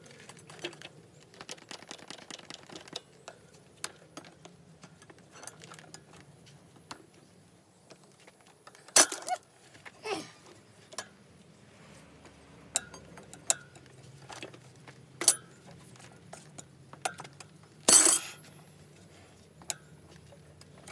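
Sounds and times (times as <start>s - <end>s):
tools clicking and clinking on metal: 15.2s - 18.5s
metallic clank: 17.9s - 18.4s
short falling metal scrape: 17.9s - 18.5s.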